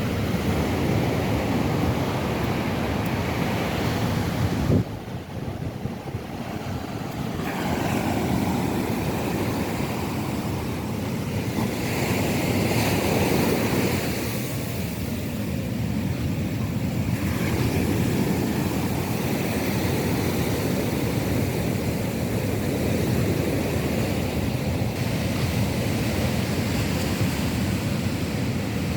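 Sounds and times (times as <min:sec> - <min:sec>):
surf breaking on beach: 0:00.0 - 0:28.9
wind buffeting microphone: 0:00.0 - 0:28.9.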